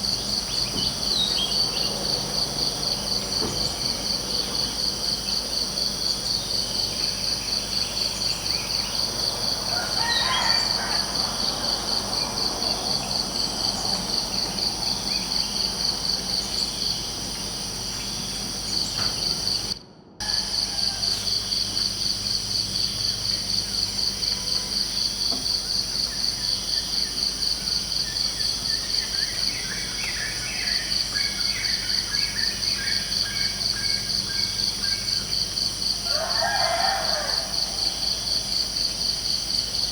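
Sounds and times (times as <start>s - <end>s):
crickets chirping: 0.0s - 39.9s
bird calls: 0.2s - 2.1s.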